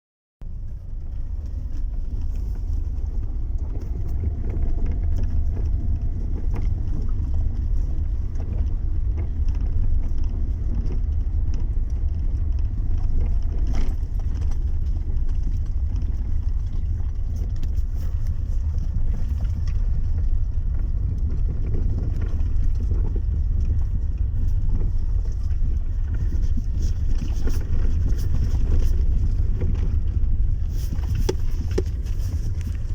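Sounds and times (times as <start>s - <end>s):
road noise rumble: 0.4s - 32.9s
power steering knocks and rattles: 20.8s - 32.9s.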